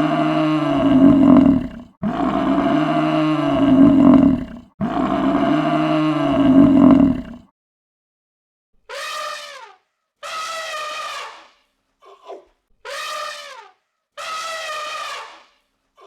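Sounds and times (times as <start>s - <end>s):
animal horn-like calls: 0.0s - 7.4s, 8.9s - 11.5s, 12.9s - 15.6s.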